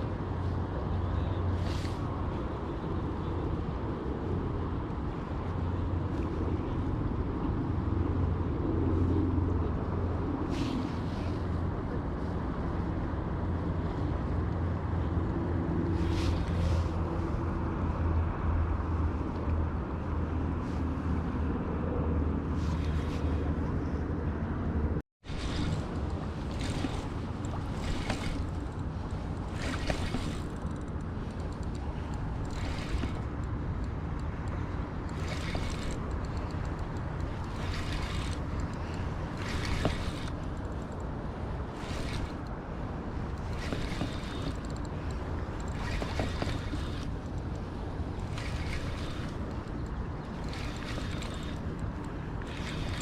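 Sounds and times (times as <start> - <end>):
water rushing: 25.3 - 53.0.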